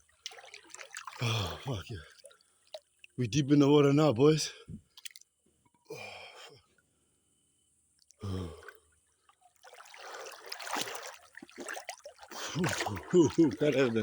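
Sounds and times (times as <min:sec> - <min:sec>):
water splashing around swimmer: 0:00.0 - 0:03.2, 0:09.6 - 0:14.0.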